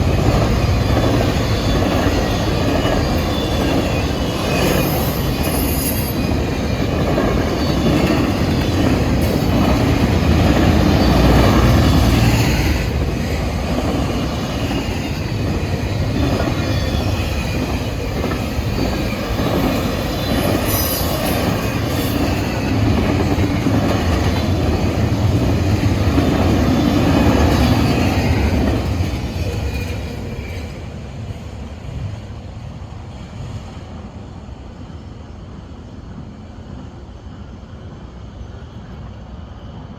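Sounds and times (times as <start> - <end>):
wheels clacking over rail joints: 0.0 - 30.7
train wheels squealing: 0.0 - 31.7
freight train cars rolling: 0.0 - 33.1.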